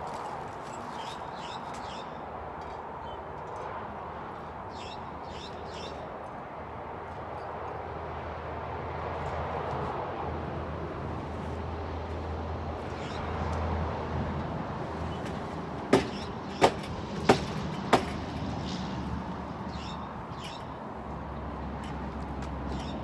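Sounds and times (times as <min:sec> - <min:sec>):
sharp knocks: 0:15.1 - 0:18.5.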